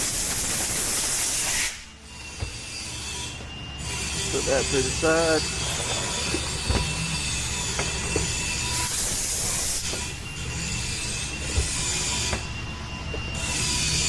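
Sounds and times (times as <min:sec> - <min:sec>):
air hissing: 0:00.0 - 0:02.0, 0:07.9 - 0:12.5
low shop hum: 0:00.0 - 0:14.0.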